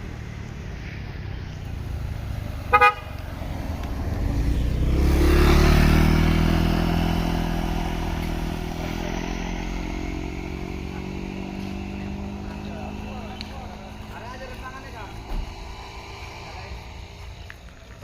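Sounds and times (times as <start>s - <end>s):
vehicle engine passing by: 0.0s - 18.0s
vehicle horn toot: 2.7s - 3.2s.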